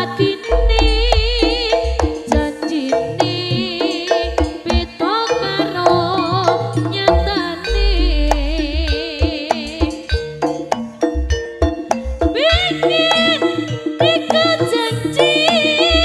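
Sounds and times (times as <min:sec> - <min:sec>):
bending wavering melody: 0:00.0 - 0:16.0
hand drum strokes: 0:00.0 - 0:16.0
deep low tones: 0:00.5 - 0:02.0, 0:07.2 - 0:09.8.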